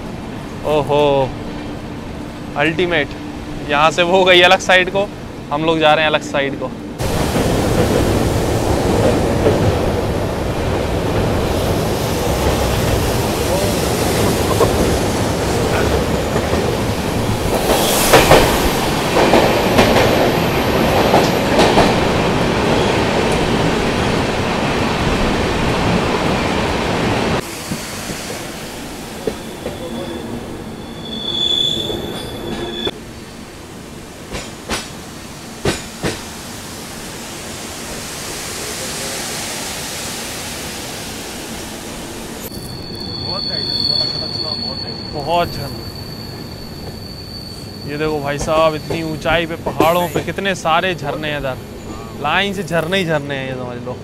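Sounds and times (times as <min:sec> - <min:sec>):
train rumbling on rails: 0:00.0 - 0:54.0
high wheel squeal: 0:29.3 - 0:32.9, 0:42.4 - 0:50.3.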